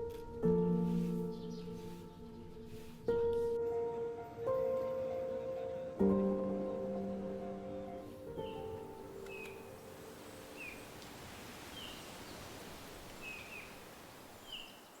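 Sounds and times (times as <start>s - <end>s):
music: 0.0s - 10.5s
outdoor hiss: 8.1s - 15.0s
bird chirping: 8.4s - 11.0s, 13.2s - 13.8s, 14.4s - 15.0s.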